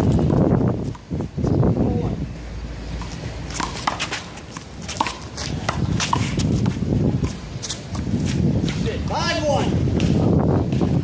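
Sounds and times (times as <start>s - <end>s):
players' footsteps: 3.0s - 9.1s.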